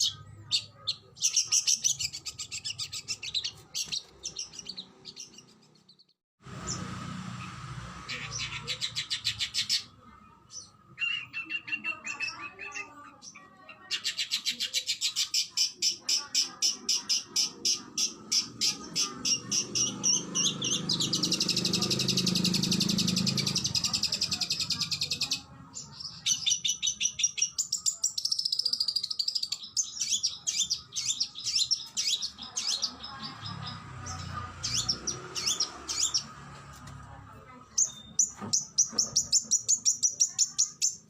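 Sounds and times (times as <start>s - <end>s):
bird singing sharp trills: 10.5s - 36.4s, 37.7s - 41.0s.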